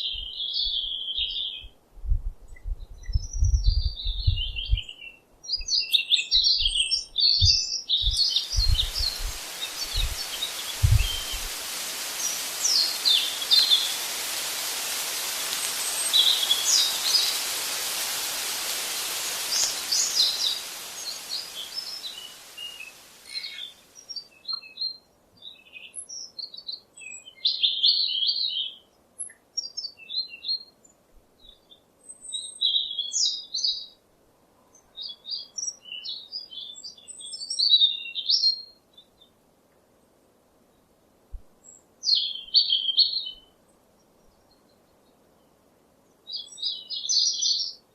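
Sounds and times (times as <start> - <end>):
wild birds chirping: 5.9 - 24.3
steady rushing hiss: 7.9 - 24.2
low thumps: 8.5 - 11.6.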